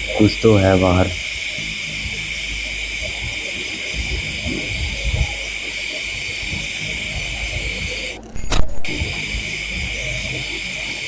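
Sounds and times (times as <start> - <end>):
night insects chorus: 0.0 - 11.0
sharp click: 8.4 - 9.2.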